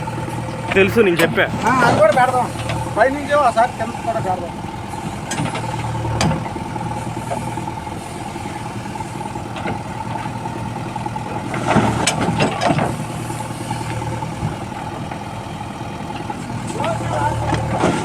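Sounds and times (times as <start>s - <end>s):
heavy diesel engine idling: 0.0s - 18.0s
metallic clanks and knocks: 4.9s - 7.5s, 11.4s - 13.0s.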